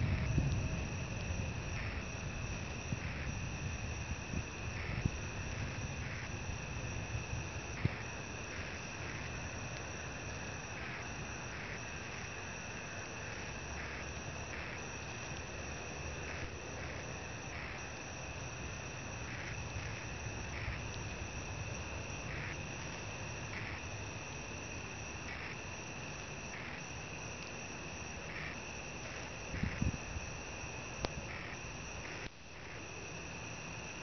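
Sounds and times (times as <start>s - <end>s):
low background rumble: 0.0s - 25.6s
crickets chirring: 0.0s - 34.0s.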